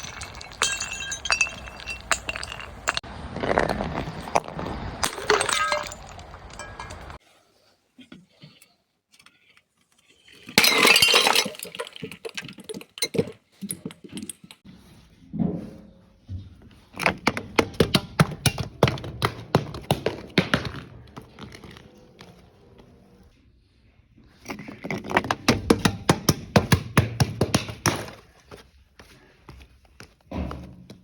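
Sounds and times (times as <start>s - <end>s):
broken glass being crushed: 0.0s - 3.0s, 5.0s - 7.2s, 10.6s - 12.3s
glass bottle shattering: 0.0s - 3.0s, 5.0s - 7.2s, 10.4s - 13.2s
glass shards clinking: 0.0s - 3.0s, 5.0s - 7.2s.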